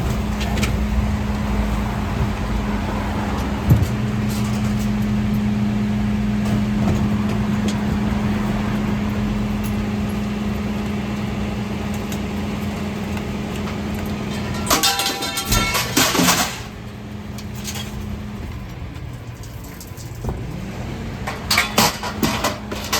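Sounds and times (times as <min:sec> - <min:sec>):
refuse truck humming: 0:00.0 - 0:22.9
loud clattering: 0:14.3 - 0:16.8.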